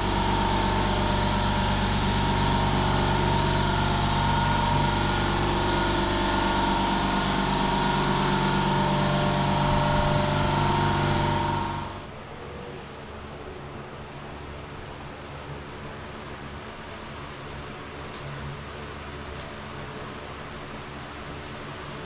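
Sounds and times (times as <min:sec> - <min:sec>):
air compressor motor humming: 0:00.0 - 0:12.1.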